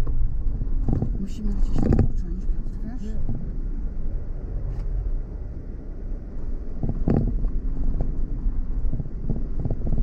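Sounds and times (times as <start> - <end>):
car rattling over bumps: 0.0 - 10.0
engine and tyre rumble: 0.0 - 10.0
wind on microphone: 6.4 - 10.0.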